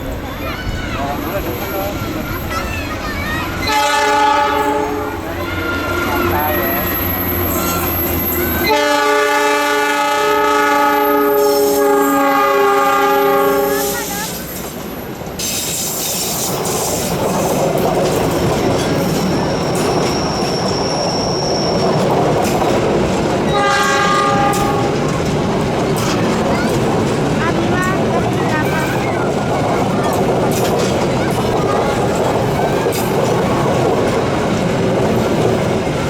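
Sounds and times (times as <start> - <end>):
train passing with wheel clatter: 0.0 - 36.0
train horn: 3.6 - 7.0, 8.6 - 14.1, 23.5 - 25.1.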